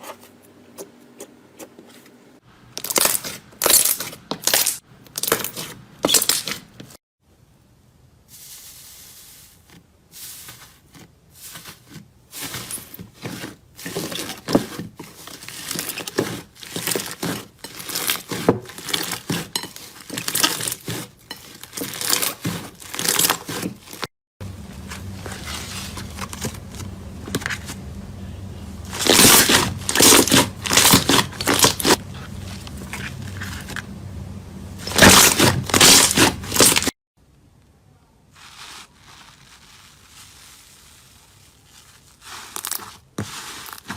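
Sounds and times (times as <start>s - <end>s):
loud crunching: 11.5s - 27.9s, 28.8s - 34.0s, 34.8s - 36.9s
low steady hum: 24.4s - 38.3s
crunchy material crackling: 28.8s - 33.9s, 34.8s - 37.0s, 38.3s - 43.9s.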